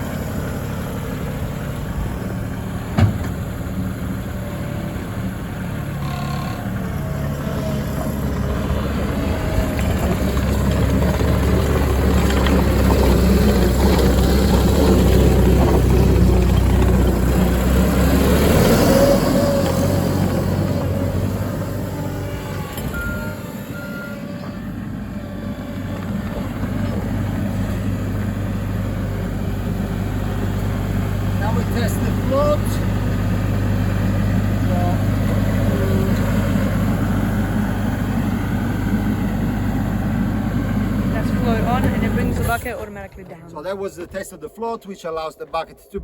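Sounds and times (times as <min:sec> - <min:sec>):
diesel engine rumbling: 0:00.0 - 0:46.0
sharp knock: 0:03.0 - 0:03.4.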